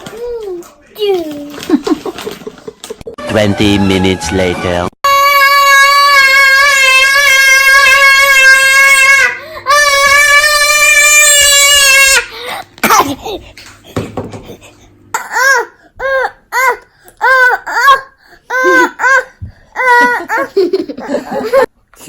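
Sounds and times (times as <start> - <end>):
young child squealing laughs: 17.7 - 21.7.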